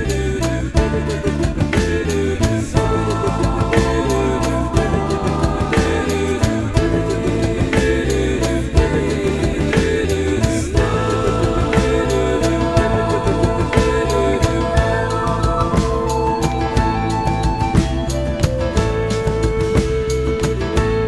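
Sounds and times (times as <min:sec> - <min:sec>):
drums: 0:00.0 - 0:21.0
guitar: 0:00.0 - 0:21.0.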